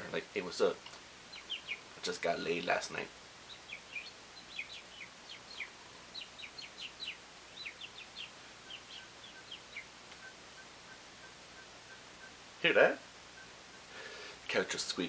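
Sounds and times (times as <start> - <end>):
robins chirping: 0.0 - 15.0.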